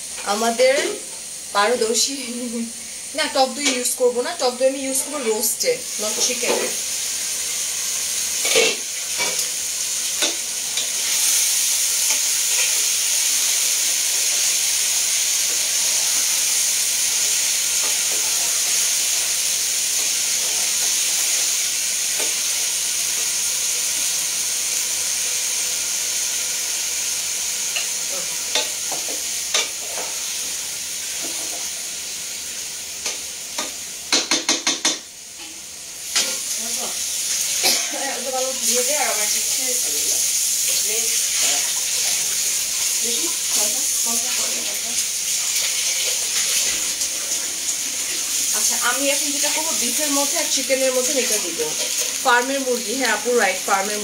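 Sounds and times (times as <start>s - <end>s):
meat sizzling in a pot: 0.0s - 54.0s.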